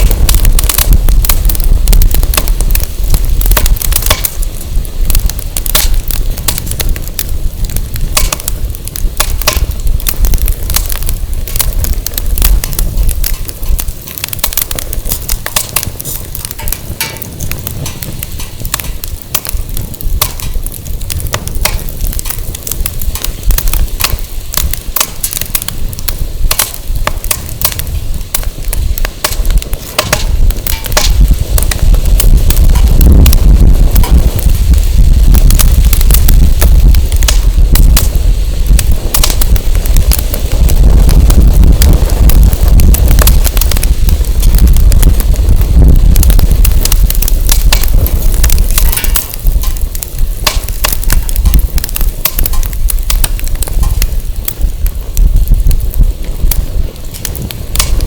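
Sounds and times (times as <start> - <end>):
firewood crackling and popping: 0.0 - 58.0
wind rumble on microphone: 0.0 - 58.0.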